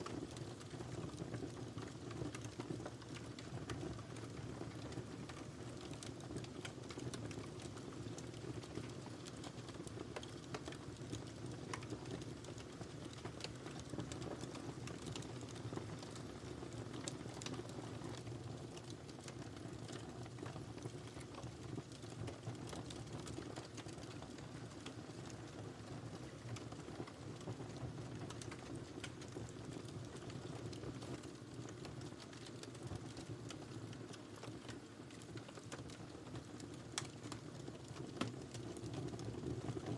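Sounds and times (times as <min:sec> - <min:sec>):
firewood crackling and popping: 0:00.0 - 0:39.9
low rumble of flames: 0:00.0 - 0:39.9.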